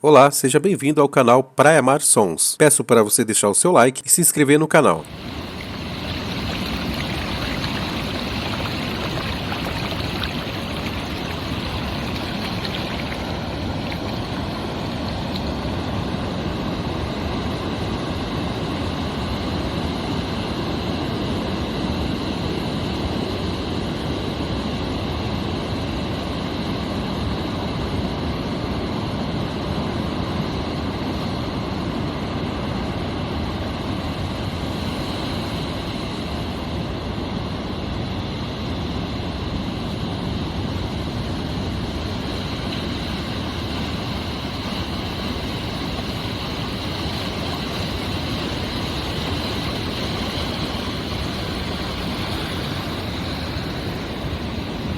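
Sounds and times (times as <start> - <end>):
ocean waves breaking: 5.0 - 25.4, 33.5 - 37.3, 38.4 - 54.9.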